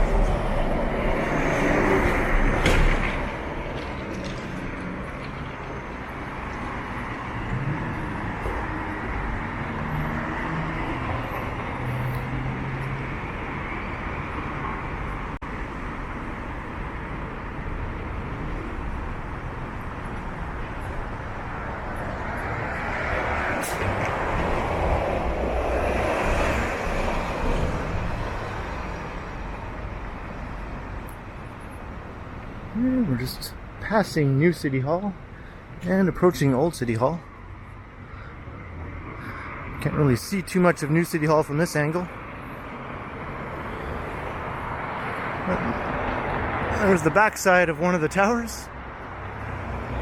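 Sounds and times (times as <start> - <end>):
vehicle passing close by: 0.0 - 5.0
heavy vehicle engine hum: 0.0 - 34.6
passing cars: 0.0 - 50.0.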